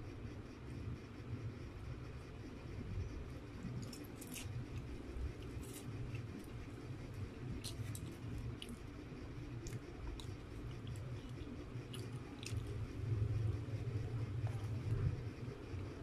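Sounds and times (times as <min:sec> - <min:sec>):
steady low hum: 0:00.0 - 0:16.0
person chewing food: 0:03.6 - 0:16.0.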